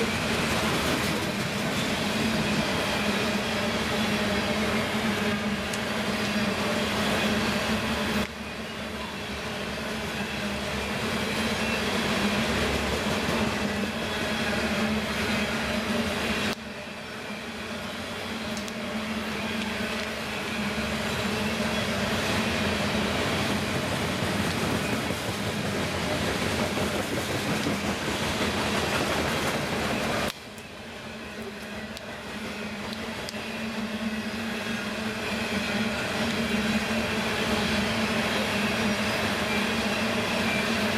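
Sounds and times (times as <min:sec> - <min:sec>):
freight train rumbling past: 0:00.0 - 0:40.9.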